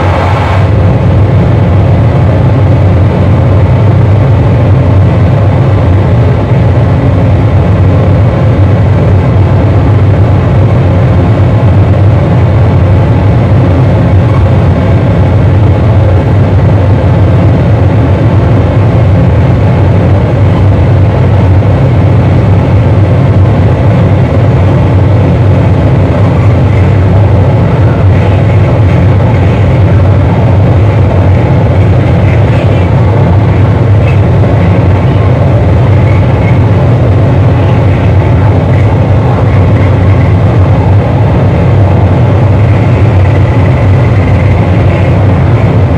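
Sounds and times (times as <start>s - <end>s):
distorted electronic noise: 0.0s - 1.0s, 25.9s - 45.9s
deep heavy hum: 0.0s - 45.9s.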